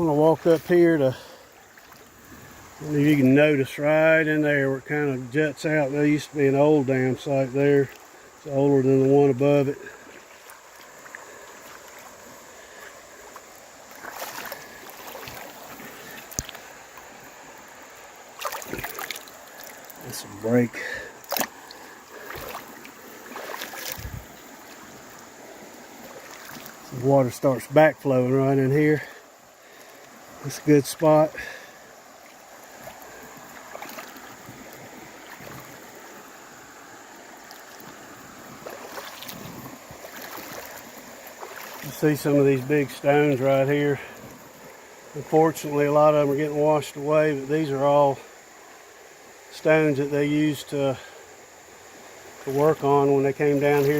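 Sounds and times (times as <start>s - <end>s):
splashing from wading: 0.0s - 3.2s, 9.8s - 27.8s, 29.0s - 45.3s, 52.2s - 53.9s
creek water running: 0.0s - 53.9s.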